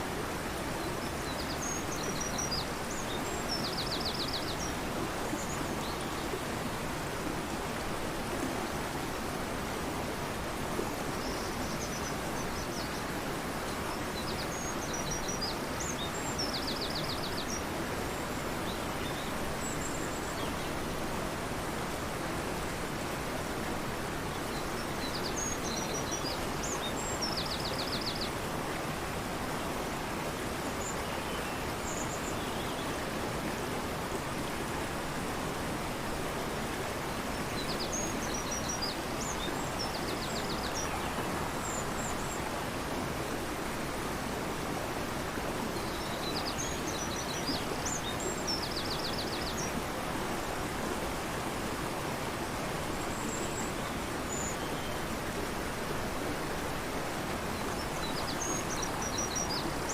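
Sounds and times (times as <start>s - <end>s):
river rushing: 0.0s - 59.9s
songbird singing: 0.8s - 6.4s, 11.2s - 21.2s, 30.0s - 33.1s, 37.1s - 43.8s, 45.6s - 50.0s, 52.9s - 59.9s.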